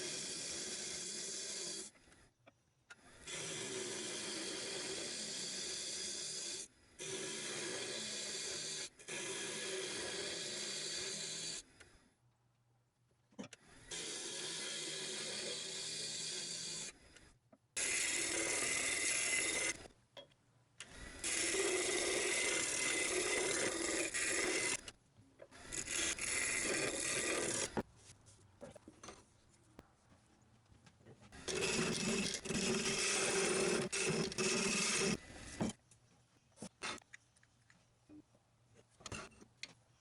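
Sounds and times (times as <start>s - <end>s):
lathe tool cutting wood: 21.2s - 24.8s, 25.7s - 27.8s, 31.4s - 35.2s.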